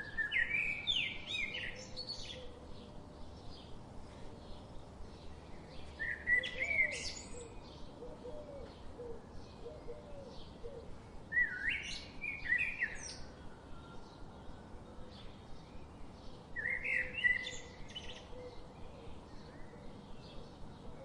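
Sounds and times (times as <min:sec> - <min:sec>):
bird singing chirpy phrases: 0:00.0 - 0:03.8, 0:04.4 - 0:08.0, 0:10.4 - 0:13.3, 0:15.2 - 0:20.6
soft repeated bird chirps: 0:00.0 - 0:21.0.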